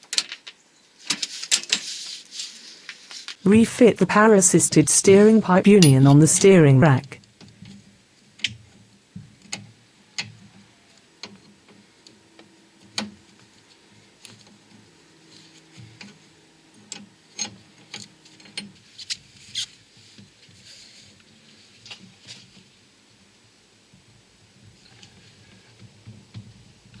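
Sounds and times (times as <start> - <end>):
hand tools tapping metal: 5.8 - 6.4.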